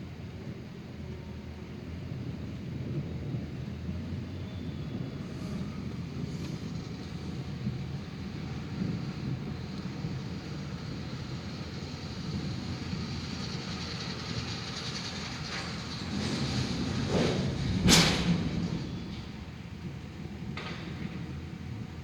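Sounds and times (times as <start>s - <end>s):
steady low rumbling: 2.0s - 22.0s
thunder crack: 15.6s - 21.3s.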